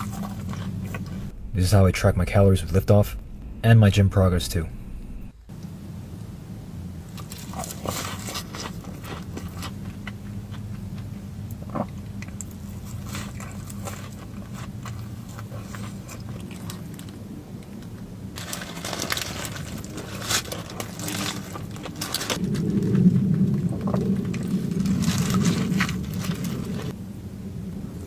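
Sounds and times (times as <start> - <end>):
crunching fried food: 0.0 - 1.3, 7.0 - 27.0
steady low hum: 0.0 - 28.0.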